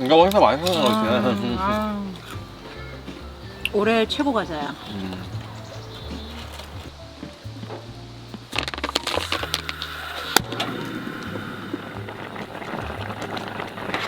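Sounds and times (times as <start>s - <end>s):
soft crackle: 4.8s - 14.0s.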